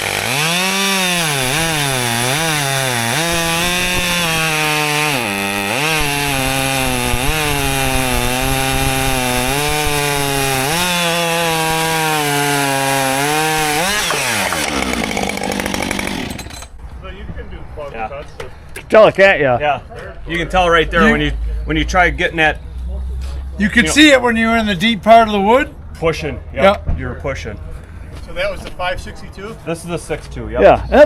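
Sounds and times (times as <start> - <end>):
chainsaw cutting into log: 0.0 - 16.7.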